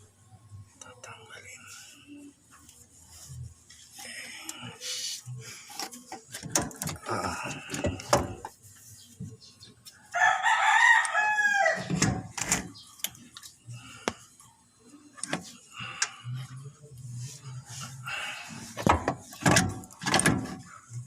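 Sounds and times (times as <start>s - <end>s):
rooster crowing: 10.1s - 11.9s.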